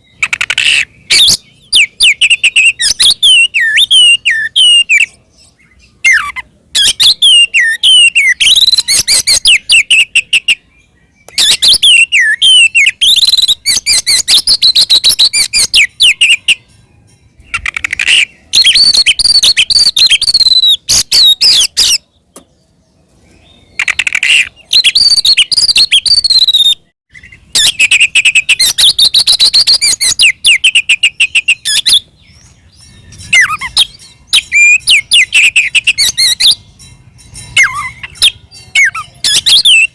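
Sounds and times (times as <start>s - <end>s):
bird singing whistles and trills: 0.0s - 39.9s.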